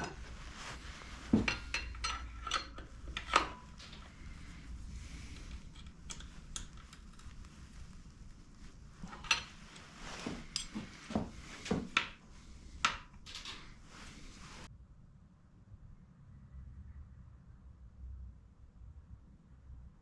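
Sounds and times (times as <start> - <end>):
metal tools clinking: 0.0 - 7.4, 9.0 - 12.1.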